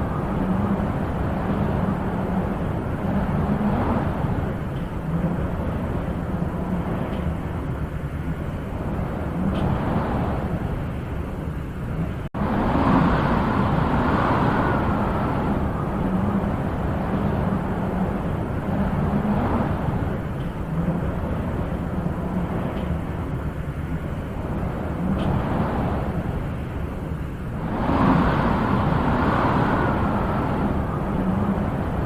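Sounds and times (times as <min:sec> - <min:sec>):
wind blowing in gusts: 0:00.0 - 0:32.0.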